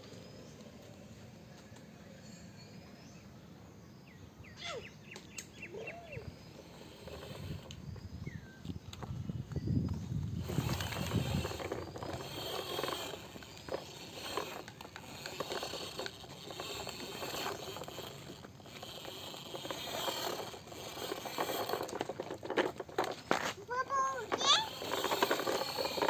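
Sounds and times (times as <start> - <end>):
toy vehicles scraping and rattling: 4.6 - 26.0
small clicks: 6.5 - 7.8.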